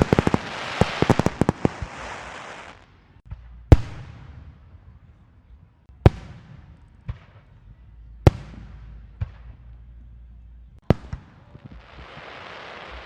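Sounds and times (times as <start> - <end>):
fireworks crackling burst: 0.0 - 3.9, 10.9 - 13.0
fireworks loud bangs: 0.0 - 4.9, 10.8 - 13.0.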